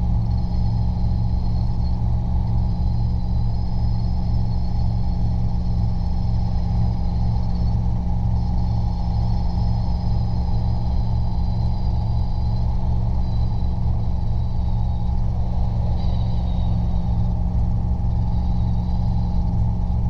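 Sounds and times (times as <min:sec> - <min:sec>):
helicopter engine and rotor drone: 0:00.0 - 0:20.0
thin high whine: 0:00.0 - 0:20.0.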